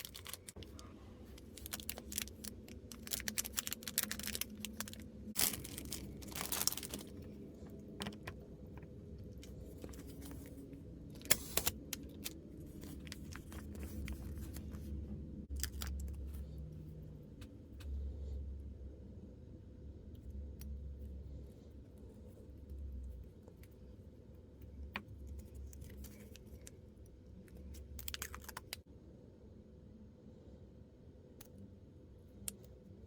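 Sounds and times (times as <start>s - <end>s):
plastic packaging crinkling and tearing: 0.0s - 8.4s, 9.2s - 14.9s, 15.5s - 16.5s, 27.5s - 28.8s.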